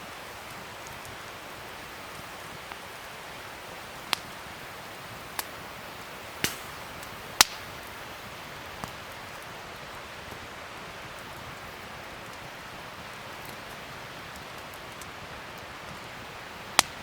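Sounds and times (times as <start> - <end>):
wood fire crackling: 0.0 - 17.0
sharp pops of fire: 4.0 - 9.4, 16.7 - 17.0.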